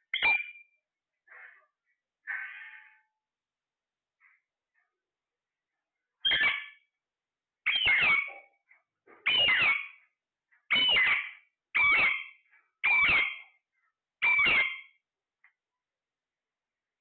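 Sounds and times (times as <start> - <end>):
parrot harsh calls: 6.2 - 6.8, 7.6 - 8.4, 9.2 - 10.0, 10.7 - 13.6, 14.2 - 15.0.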